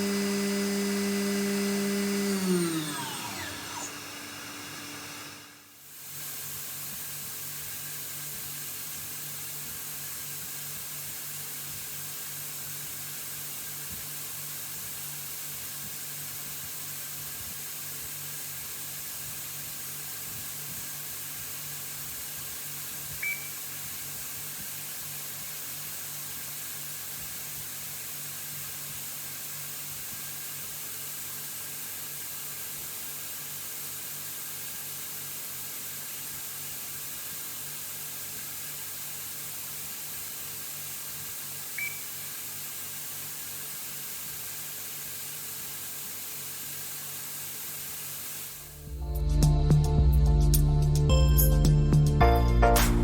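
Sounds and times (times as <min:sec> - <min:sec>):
lathe hissing and humming: 0:00.0 - 0:06.5
short high beep: 0:23.2 - 0:23.6.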